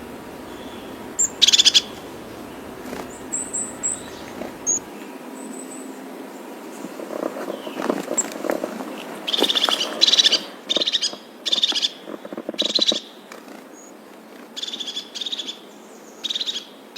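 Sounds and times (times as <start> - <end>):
bird buzzy rattling trills: 0.0 - 4.9, 6.7 - 15.7
faint rustling: 0.0 - 4.9, 6.7 - 14.6.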